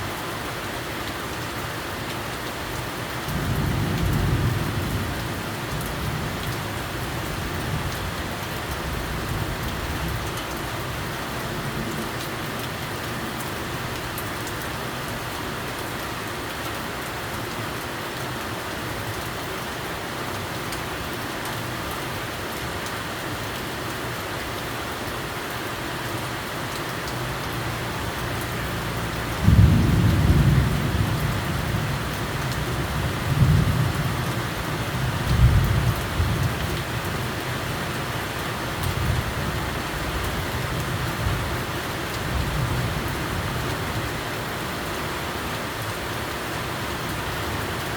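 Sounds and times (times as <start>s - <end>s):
raindrops ticking on surfaces: 0.0s - 47.9s
steady rain hiss: 0.0s - 47.9s
low rumble of thunder: 3.3s - 10.8s, 27.8s - 37.4s.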